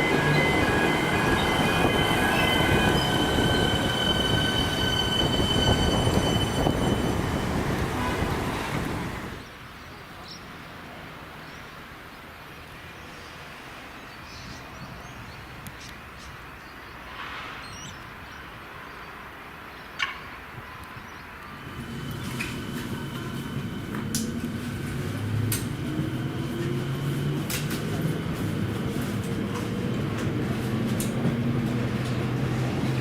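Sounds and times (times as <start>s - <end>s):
train wheels squealing: 0.0s - 9.4s
train wheels rumbling on rails: 0.0s - 9.5s, 21.4s - 33.0s.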